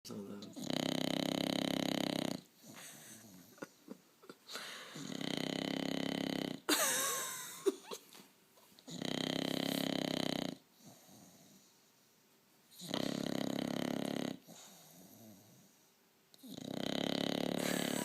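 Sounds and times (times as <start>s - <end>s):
dog snoring: 0.4s - 3.6s, 4.9s - 6.7s, 8.9s - 11.7s, 12.7s - 15.8s, 16.4s - 18.0s.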